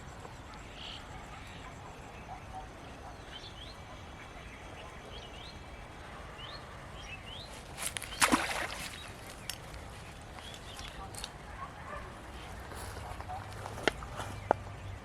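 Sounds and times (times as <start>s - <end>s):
steady outdoor background: 0.0s - 15.0s
small birds chirping: 0.5s - 15.0s.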